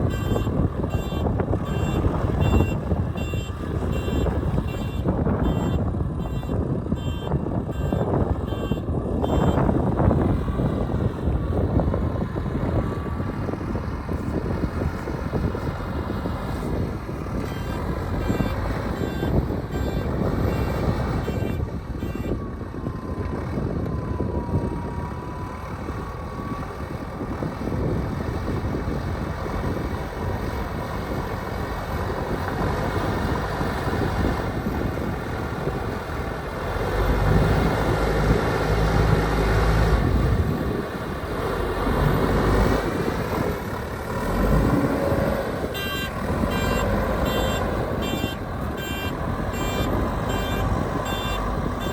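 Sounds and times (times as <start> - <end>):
reversing alarm beeping: 0.0 - 9.7, 17.5 - 22.6, 45.7 - 51.9
construction machinery engine: 0.0 - 51.9
low gusty rumble: 0.0 - 51.9.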